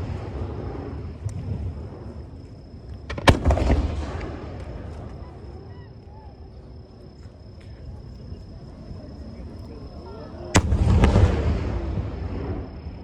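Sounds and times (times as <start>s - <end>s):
firework crackles: 0.0s - 5.5s, 10.6s - 13.0s.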